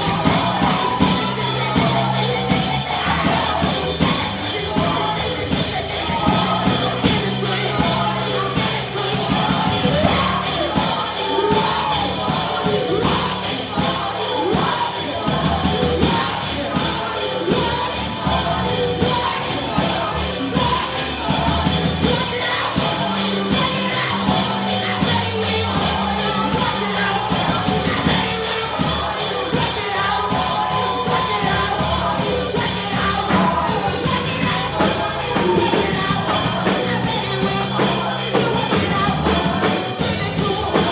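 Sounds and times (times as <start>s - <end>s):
band with drums and bass: 0.0s - 40.9s
voices singing: 0.0s - 40.9s.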